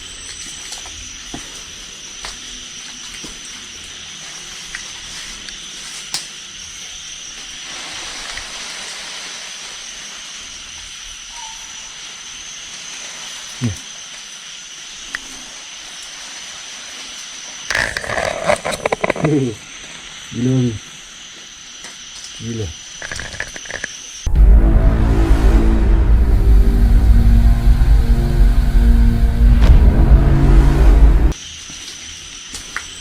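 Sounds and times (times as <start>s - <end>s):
night insect chorus: 0.0s - 24.3s, 31.3s - 33.0s
background hiss: 3.9s - 17.7s
low thud: 24.3s - 31.4s.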